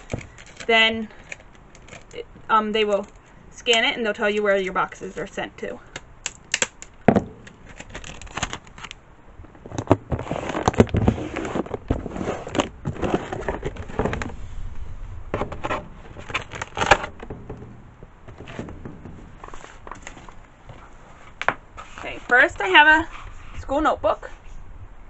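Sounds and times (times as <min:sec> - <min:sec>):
paper crackling: 0:00.0 - 0:03.2, 0:06.3 - 0:09.0, 0:15.4 - 0:17.3, 0:18.3 - 0:22.5
scraping: 0:00.0 - 0:03.4, 0:06.8 - 0:23.6.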